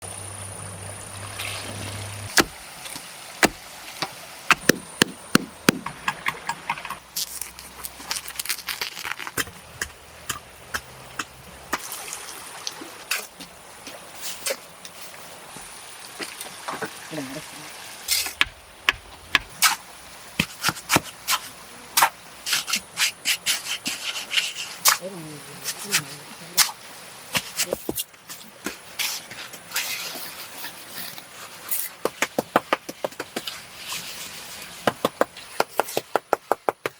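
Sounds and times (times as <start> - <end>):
sharp knocks: 2.3 - 2.6, 3.4 - 6.9.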